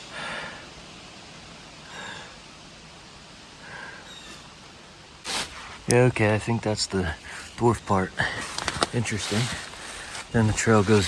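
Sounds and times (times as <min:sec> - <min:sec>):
soft breathing: 0:00.0 - 0:00.8, 0:01.8 - 0:02.6, 0:03.5 - 0:05.8, 0:07.1 - 0:11.0
outdoor background hiss: 0:00.0 - 0:11.0.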